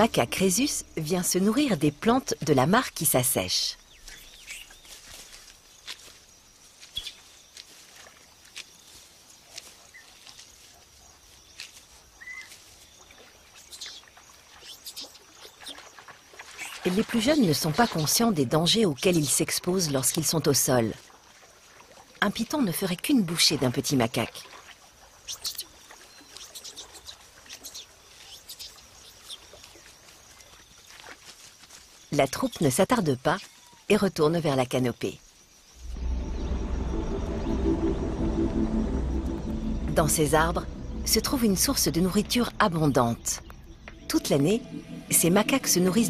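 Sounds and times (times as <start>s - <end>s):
small birds chirping: 3.8s - 6.1s, 6.8s - 7.7s, 11.3s - 16.9s, 25.2s - 31.0s
soft rustles in vegetation: 3.8s - 16.9s, 24.5s - 32.7s.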